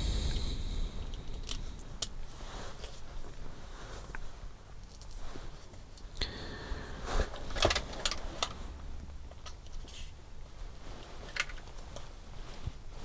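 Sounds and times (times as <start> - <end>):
plastic parts clicking and rattling: 7.4 - 8.6, 11.3 - 11.8.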